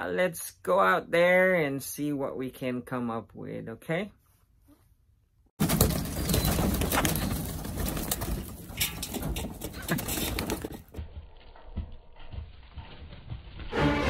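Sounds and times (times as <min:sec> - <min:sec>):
wings flapping: 0:05.6 - 0:11.0
chickens scrambling over dirt: 0:05.6 - 0:13.8.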